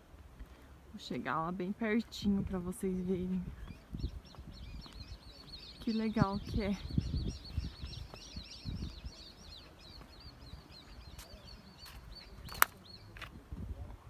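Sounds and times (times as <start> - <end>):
bird chirping: 2.9 - 13.3
sharp click: 11.9 - 13.3.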